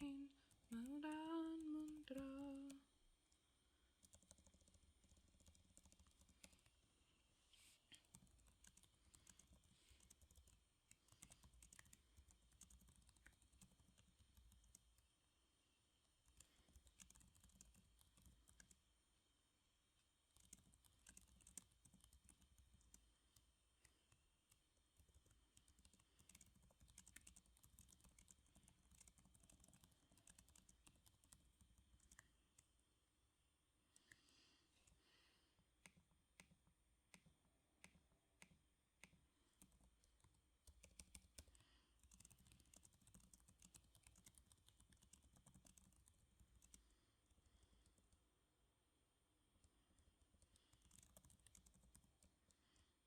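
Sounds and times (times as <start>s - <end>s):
typing on computer keyboard: 4.0s - 6.7s, 8.0s - 15.1s, 16.1s - 18.9s, 20.3s - 32.7s, 35.8s - 48.2s, 50.0s - 52.8s.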